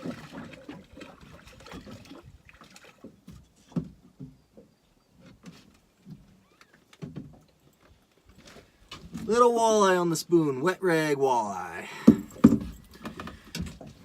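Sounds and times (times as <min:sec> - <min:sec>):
light water sounds: 0:00.0 - 0:04.1
knocks and handling noises: 0:12.0 - 0:14.0.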